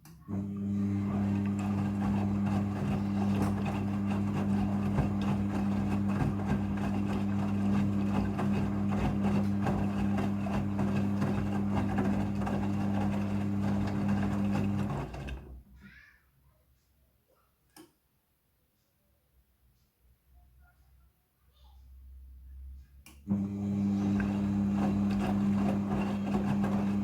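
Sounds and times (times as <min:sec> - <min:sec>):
washing machine running: 0:00.3 - 0:15.6, 0:23.3 - 0:27.0.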